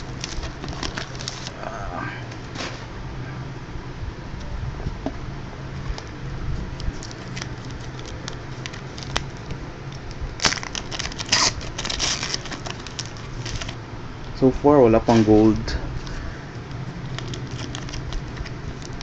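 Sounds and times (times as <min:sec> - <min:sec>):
card wrappers crinkling and tearing: 0:00.0 - 0:01.8, 0:06.7 - 0:13.8, 0:15.1 - 0:19.0.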